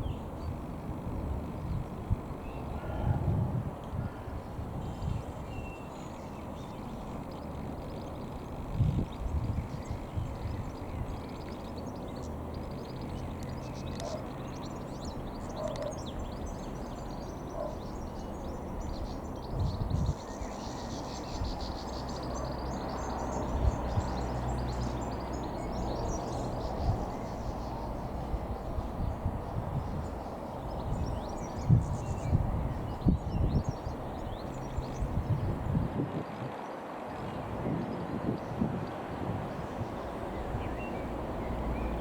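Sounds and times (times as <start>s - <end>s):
small birds chirping: 0.0s - 3.2s, 3.8s - 42.0s
steady low rumble: 22.8s - 36.0s.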